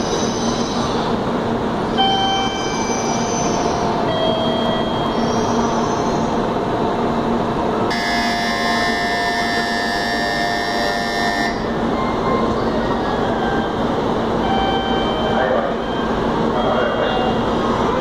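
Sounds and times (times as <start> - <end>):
train rushing noise: 0.0 - 18.0
high-pitched multi-tone squeal: 1.9 - 6.4, 7.9 - 13.8, 14.4 - 16.9.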